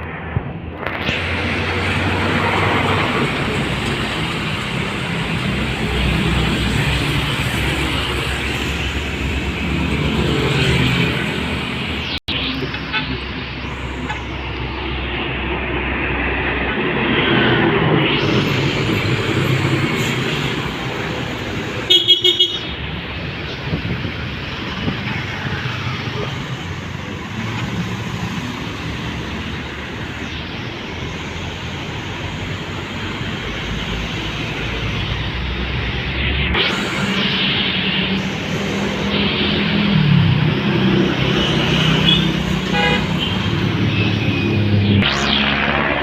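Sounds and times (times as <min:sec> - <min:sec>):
road traffic passing: 0:00.0 - 0:46.0
trucks going by: 0:00.0 - 0:46.0
vehicle horn tooting: 0:21.9 - 0:22.7, 0:42.1 - 0:43.4.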